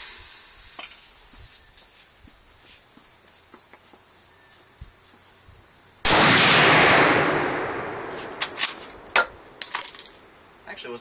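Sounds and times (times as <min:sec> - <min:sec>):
rifle shot: 0:06.0 - 0:09.1.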